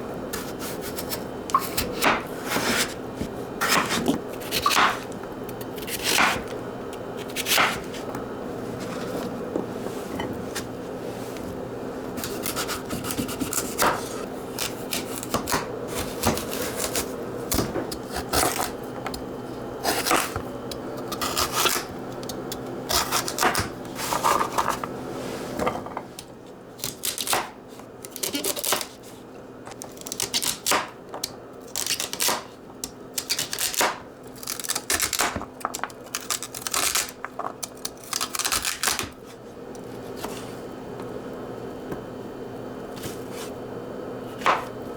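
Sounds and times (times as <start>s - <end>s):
steady hum: 0.0s - 26.8s.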